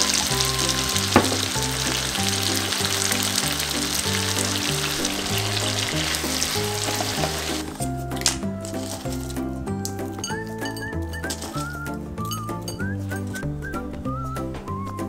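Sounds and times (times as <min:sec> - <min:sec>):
meat sizzling in a frying pan: 0:00.0 - 0:07.7
background music with bass line: 0:00.0 - 0:15.0.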